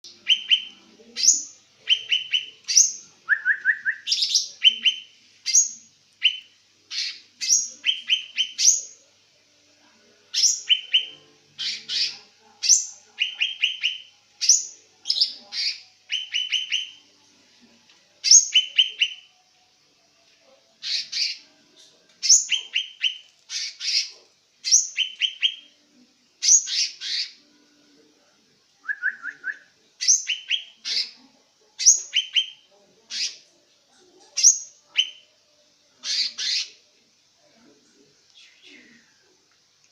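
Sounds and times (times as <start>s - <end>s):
bird singing: 0.0s - 9.0s, 10.4s - 17.0s, 18.2s - 19.3s, 22.2s - 25.7s, 28.9s - 31.2s, 31.8s - 33.4s.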